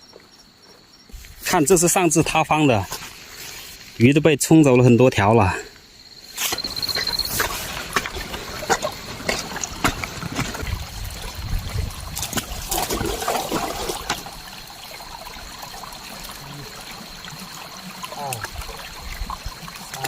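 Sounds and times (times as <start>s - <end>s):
water splashes and knocks: 1.5s - 3.2s, 6.4s - 20.0s
water trickling: 6.0s - 20.0s.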